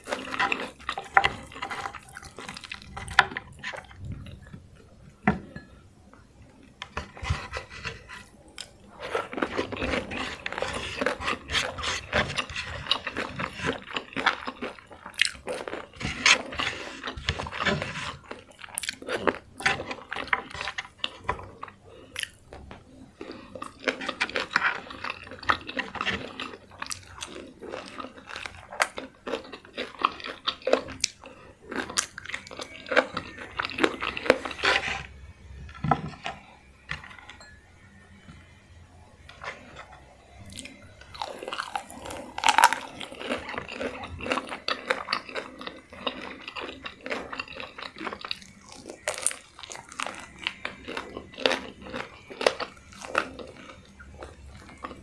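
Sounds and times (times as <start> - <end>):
person chewing crispy chicken: 0.0 - 5.3, 6.4 - 37.4, 38.4 - 55.0.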